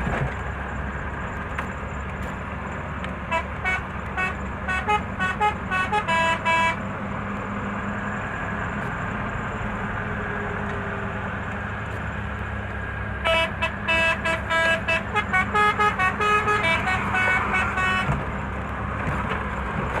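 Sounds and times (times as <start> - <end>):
truck engine running: 0.0 - 20.0
musical truck horn melody: 3.3 - 6.8, 13.2 - 18.2.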